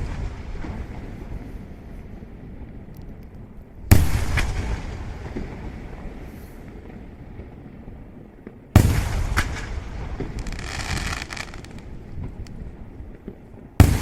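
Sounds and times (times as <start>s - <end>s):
fireworks bangs: 8.8s - 14.0s
hissing crackle: 9.4s - 12.7s.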